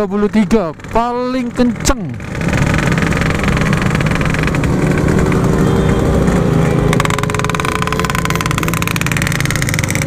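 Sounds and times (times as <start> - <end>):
two-stroke motorcycle engine running: 0.0 - 10.0
steady high tone: 3.1 - 9.0.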